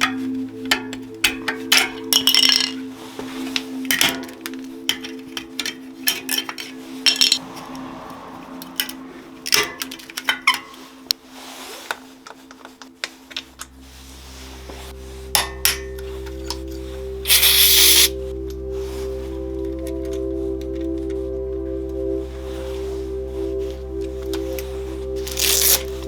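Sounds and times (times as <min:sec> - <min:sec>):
background music: 0:00.0 - 0:26.0
metal tools clinking: 0:00.1 - 0:02.9, 0:03.9 - 0:07.4, 0:17.3 - 0:18.1
deep bass note: 0:13.5 - 0:26.0.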